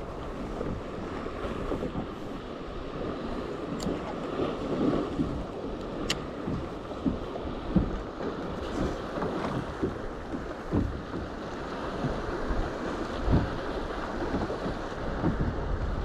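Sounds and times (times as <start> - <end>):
water slapping against kayak: 0.0 - 16.0
wind buffeting microphone: 0.0 - 16.0.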